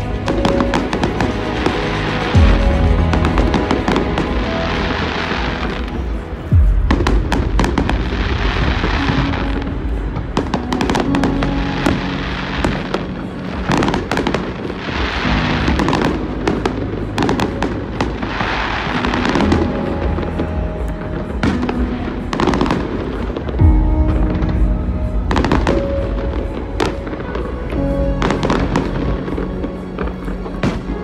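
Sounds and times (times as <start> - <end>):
fireworks bangs and crackling: 0.0 - 31.0.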